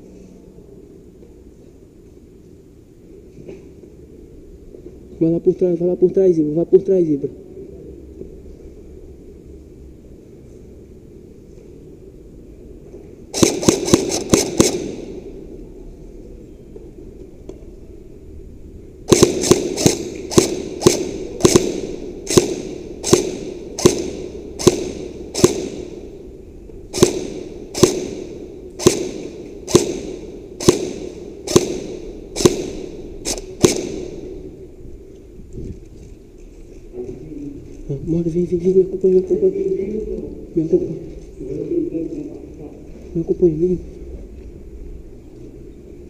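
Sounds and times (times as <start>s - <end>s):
airsoft gun shots: 13.3s - 15.4s, 19.1s - 26.2s, 26.9s - 34.5s.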